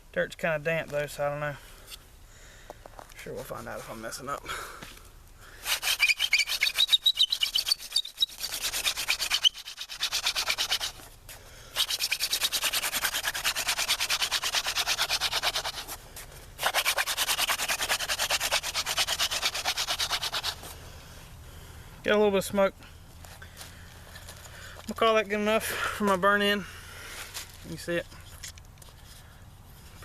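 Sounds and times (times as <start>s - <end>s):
hands rubbing spindle: 5.6s - 20.8s.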